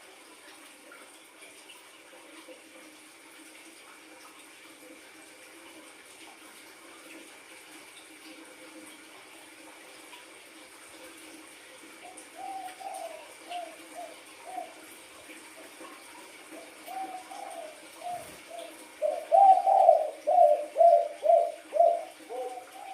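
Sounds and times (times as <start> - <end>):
faint steady hiss: 0.0 - 22.9
dove cooing: 12.0 - 15.1, 16.4 - 22.9.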